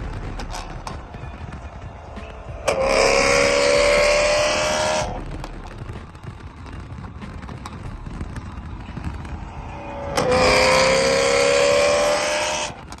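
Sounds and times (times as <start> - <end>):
parking lot car noise: 0.0 - 13.0
car engine revving hard: 2.7 - 5.2, 9.7 - 12.8.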